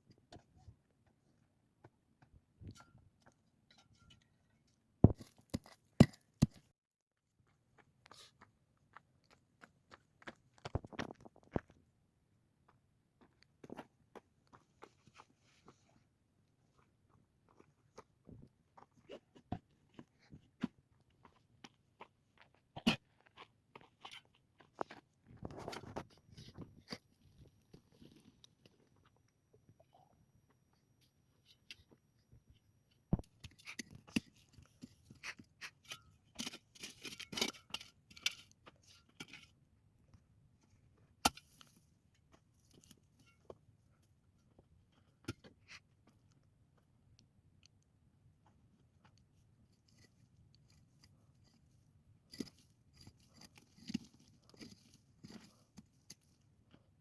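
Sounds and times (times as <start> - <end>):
crunches and knocks of hand work: 5.0 - 6.7.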